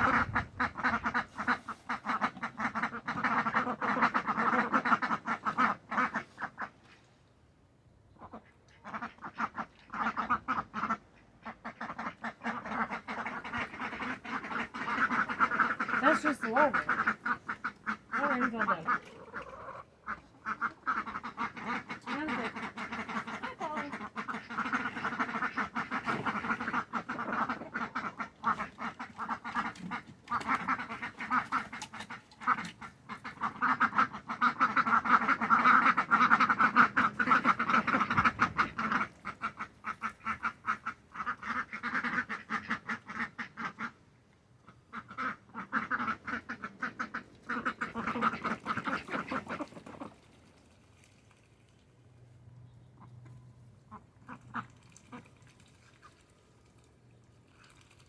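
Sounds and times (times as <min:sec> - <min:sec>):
ducks quacking: 0:00.0 - 0:07.0, 0:08.2 - 0:44.0, 0:44.6 - 0:50.3.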